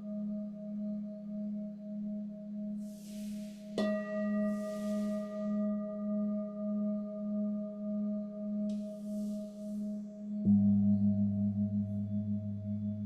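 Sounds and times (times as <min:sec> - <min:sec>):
soft hisses: 0:02.8 - 0:03.8, 0:04.4 - 0:05.5
bowl struck: 0:02.8 - 0:13.0
singing bowls ringing: 0:02.8 - 0:13.0.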